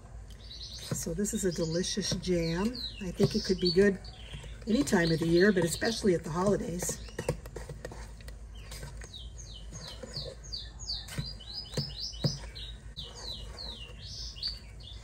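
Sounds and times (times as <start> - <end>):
bird singing high chirps: 8.5 - 15.0.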